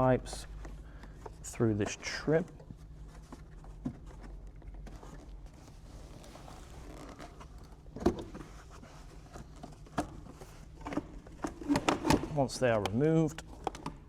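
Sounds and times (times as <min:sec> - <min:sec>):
faint rubbing and rustling: 0:00.2 - 0:10.9.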